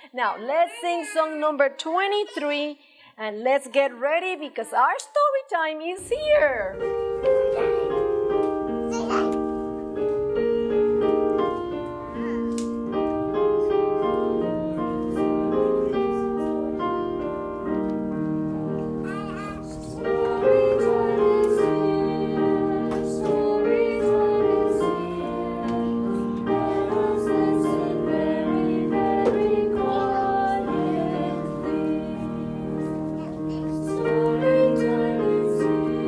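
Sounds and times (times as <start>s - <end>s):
piano playing children's song: 6.3s - 36.0s
person singing: 19.2s - 32.6s.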